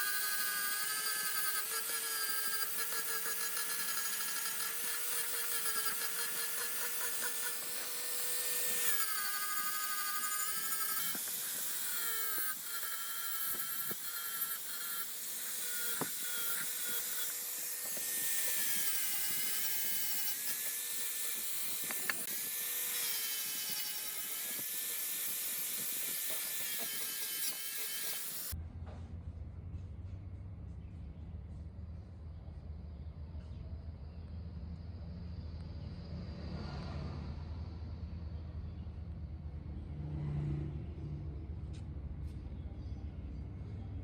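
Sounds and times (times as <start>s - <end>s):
power tool motor whining: 0.0s - 28.6s.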